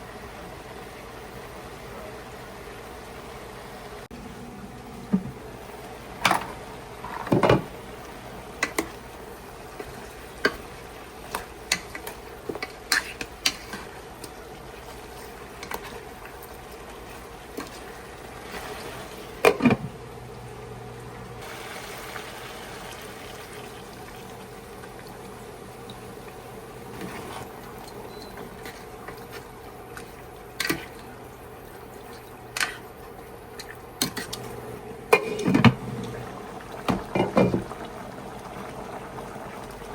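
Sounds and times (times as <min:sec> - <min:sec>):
cookware and utensils clinking: 0:06.2 - 0:07.7, 0:27.2 - 0:29.2, 0:35.1 - 0:35.8
running liquid: 0:20.5 - 0:32.6, 0:35.1 - 0:39.9.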